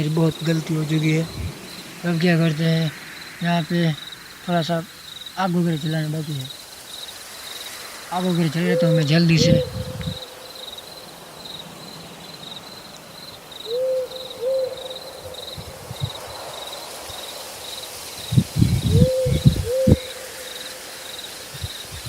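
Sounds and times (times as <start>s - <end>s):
crickets chirping: 0.0s - 22.0s
owl hooting: 5.8s - 16.2s, 18.2s - 22.0s.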